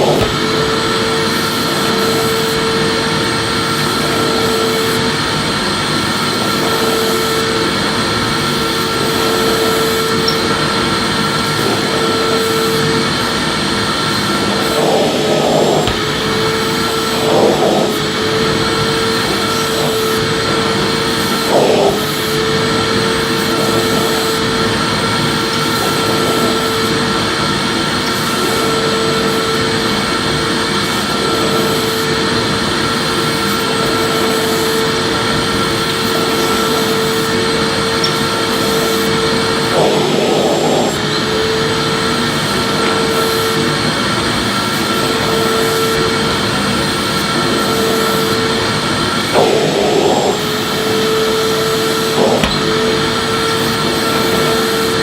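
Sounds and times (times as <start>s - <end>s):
vacuum nozzle bumping on floor: 0.0s - 1.1s, 14.8s - 18.1s, 52.1s - 54.6s
vacuum cleaner running: 0.0s - 55.0s.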